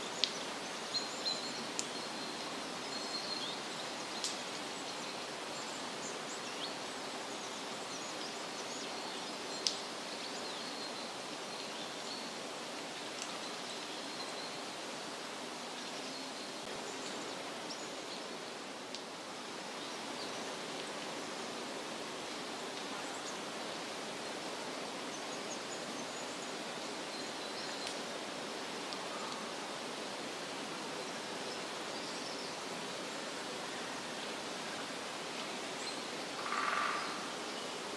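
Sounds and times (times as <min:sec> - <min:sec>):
forest rushing hiss: 0:00.0 - 0:37.9.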